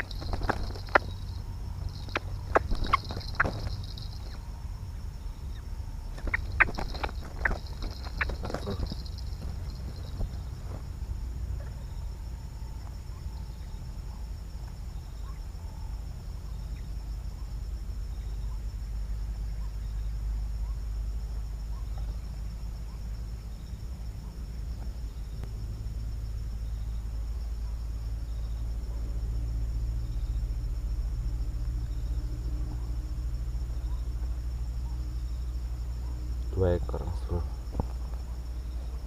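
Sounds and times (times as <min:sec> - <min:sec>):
insects chirring: 0:00.0 - 0:39.0
faint short pips: 0:06.2 - 0:10.9.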